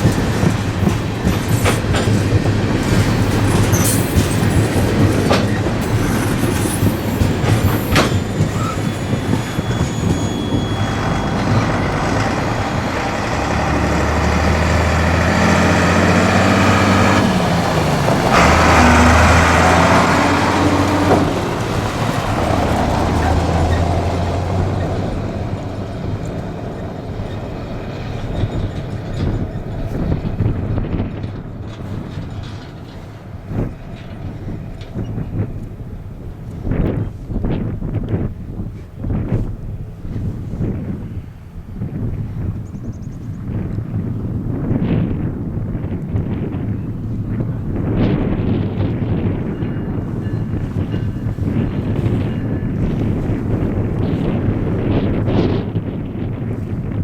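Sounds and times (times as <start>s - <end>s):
train wheels clicking over rails: 0.0s - 40.3s
locomotive engine drone: 0.0s - 57.0s.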